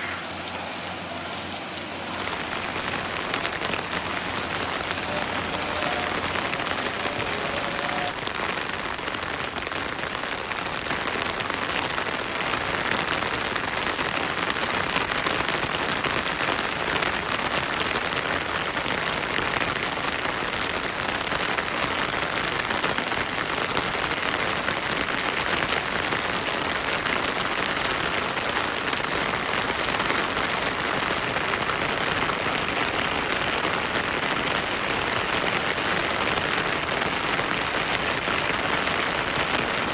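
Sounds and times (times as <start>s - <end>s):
stream running: 0.0s - 8.2s
heavy rain falling: 0.0s - 39.9s.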